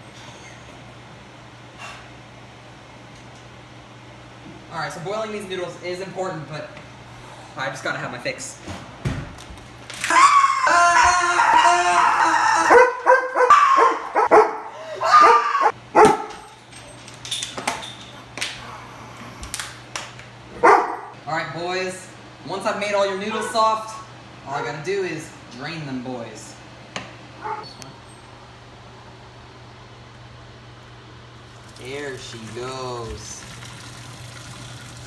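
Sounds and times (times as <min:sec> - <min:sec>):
dog yipping and whimpering: 0:12.7 - 0:14.4, 0:15.0 - 0:15.8, 0:27.4 - 0:27.7
low machine hum: 0:23.9 - 0:35.0
fan hiss: 0:28.6 - 0:35.0.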